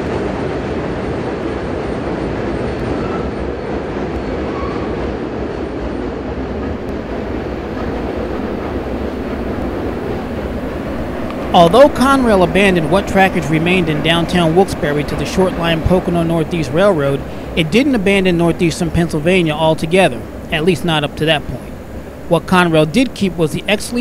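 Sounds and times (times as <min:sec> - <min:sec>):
freight train rumbling over bridge: 0:00.0 - 0:24.0
faint wheel squeals: 0:04.3 - 0:05.0.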